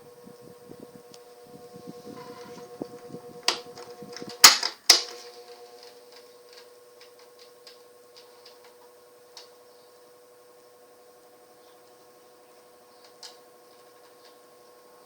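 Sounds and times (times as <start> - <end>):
fan motor humming: 0.0 - 15.0
sharp mechanical clicks: 2.2 - 8.6.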